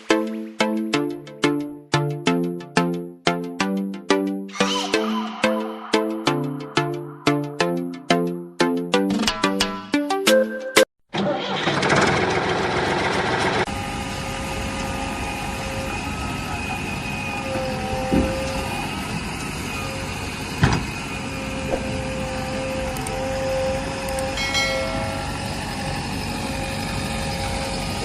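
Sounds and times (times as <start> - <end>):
small motor whining: 13.7 - 28.0.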